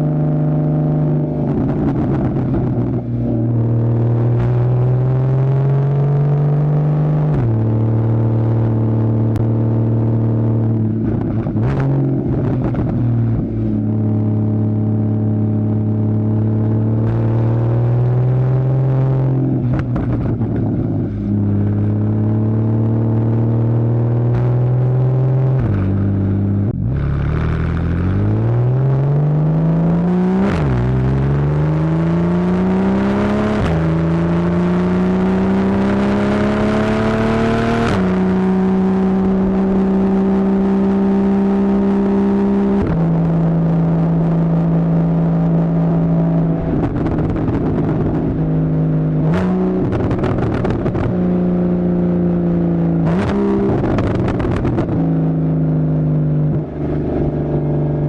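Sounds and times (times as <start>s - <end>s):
car engine revving with upshifts: 0.0s - 58.0s
exhaust crackling: 10.1s - 23.4s, 24.1s - 32.7s, 41.8s - 58.0s.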